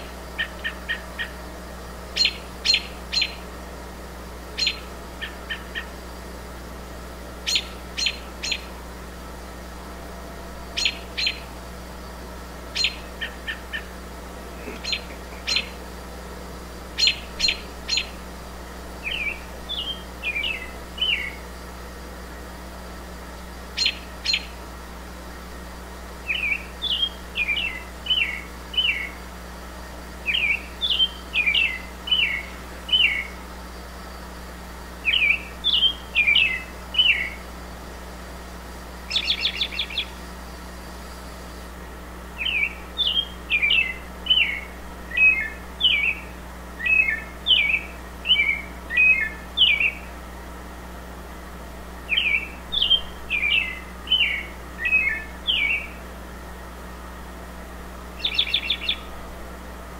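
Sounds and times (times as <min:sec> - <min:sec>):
songbird whistling phrases: 0:02.1 - 0:03.5, 0:04.5 - 0:06.0, 0:07.4 - 0:08.8, 0:10.8 - 0:11.5, 0:12.7 - 0:13.9, 0:14.6 - 0:15.8, 0:16.9 - 0:18.2, 0:19.0 - 0:21.5, 0:23.7 - 0:24.6, 0:26.2 - 0:29.2, 0:30.2 - 0:33.4, 0:35.0 - 0:37.4, 0:39.0 - 0:40.2, 0:42.4 - 0:50.1, 0:52.0 - 0:56.0, 0:58.2 - 0:59.1
sharp bird chips: 0:14.6 - 0:15.9, 0:16.9 - 0:18.2.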